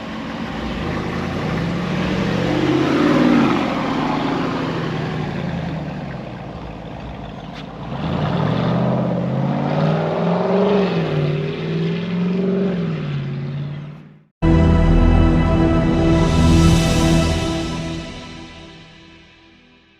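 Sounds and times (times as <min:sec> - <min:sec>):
car engine revving: 0:00.1 - 0:14.2.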